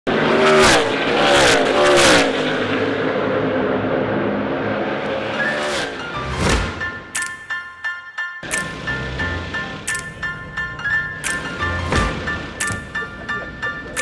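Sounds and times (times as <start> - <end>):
race cars passing by: 0.1 - 7.2, 8.4 - 14.0.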